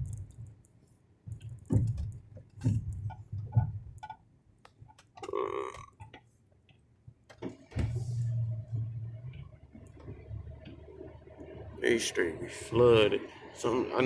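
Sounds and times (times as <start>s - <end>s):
engine and road noise rumble: 0.0s - 14.0s
person burping: 5.2s - 6.0s.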